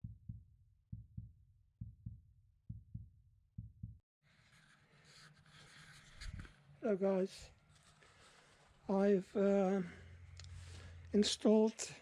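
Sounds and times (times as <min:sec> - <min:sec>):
heartbeat double thumps: 0:00.0 - 0:04.0.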